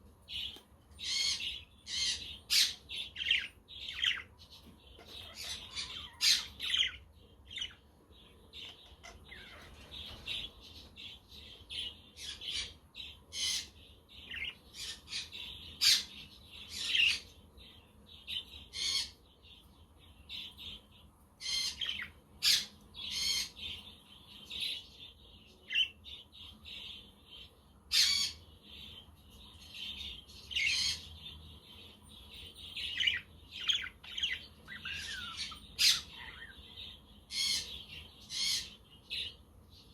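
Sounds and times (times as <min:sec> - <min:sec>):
budgerigars chattering: 0:05.0 - 0:07.8, 0:33.0 - 0:39.3.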